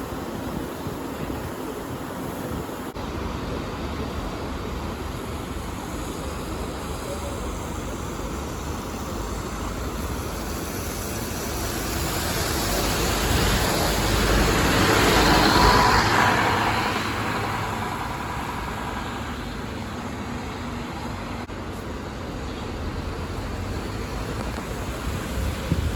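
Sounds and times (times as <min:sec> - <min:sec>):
bus driving past: 0:07.8 - 0:25.9.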